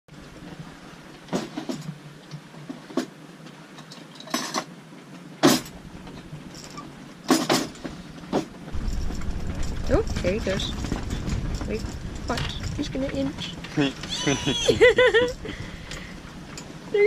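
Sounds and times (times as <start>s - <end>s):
low steady background: 8.0s - 17.0s.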